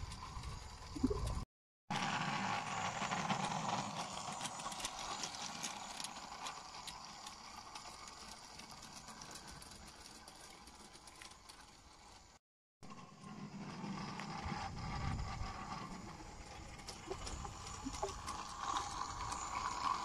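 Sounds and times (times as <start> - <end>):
wheels clicking on rails: 0.0 - 20.0
model train motor hum: 1.9 - 20.0.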